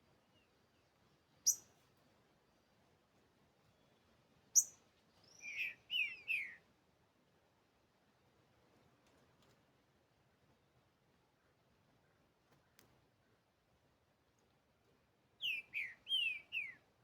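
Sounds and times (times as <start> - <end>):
bird whistled song: 1.4 - 1.7, 4.6 - 6.6, 15.4 - 16.9.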